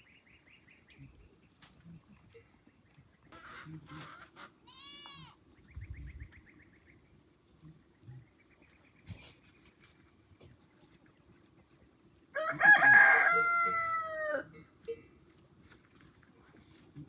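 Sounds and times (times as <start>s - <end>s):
goat bleating: 3.4s - 5.4s.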